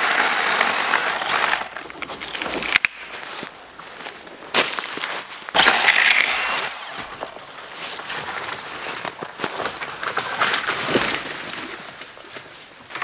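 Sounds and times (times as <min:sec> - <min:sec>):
crunching footsteps: 0:00.8 - 0:11.3
crackles and snaps: 0:01.7 - 0:03.2, 0:07.1 - 0:13.0.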